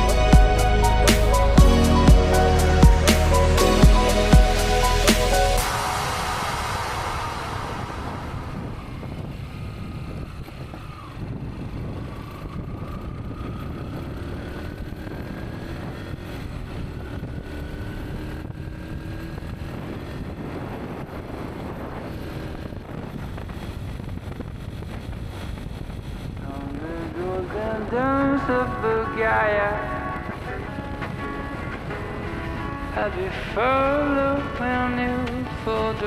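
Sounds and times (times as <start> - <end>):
vehicle engine running: 0.0 - 12.0
wind rumble: 0.0 - 36.0.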